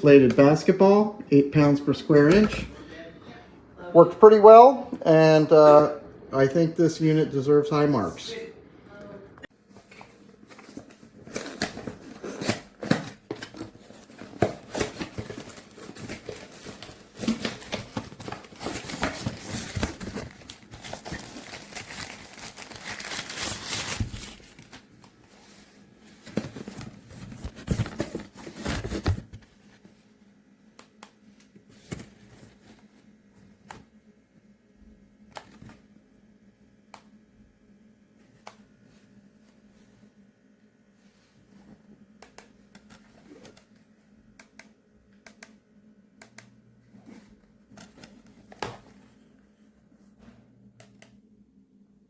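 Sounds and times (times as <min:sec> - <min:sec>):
crinkling and rustling: 0:09.7 - 0:30.0.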